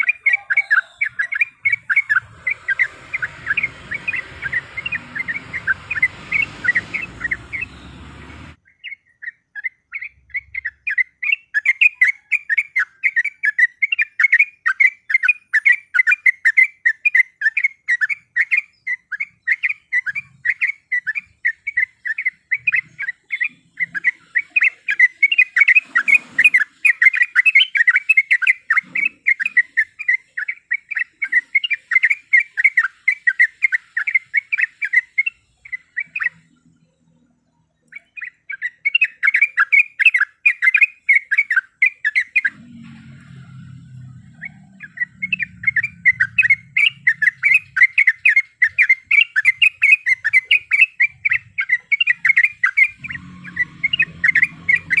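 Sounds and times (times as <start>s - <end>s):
bird chattering call: 0.0s - 16.1s, 44.0s - 55.0s.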